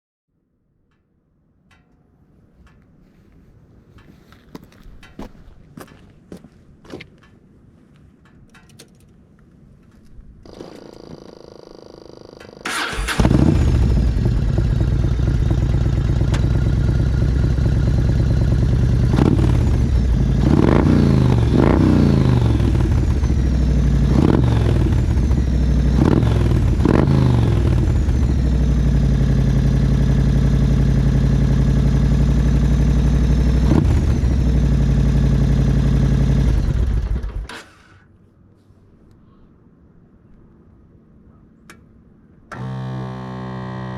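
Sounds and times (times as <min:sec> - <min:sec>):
starter motor cranking: 0:10.5 - 0:14.2
motorcycle engine idling and revving: 0:10.5 - 0:37.7, 0:42.5 - 0:43.9.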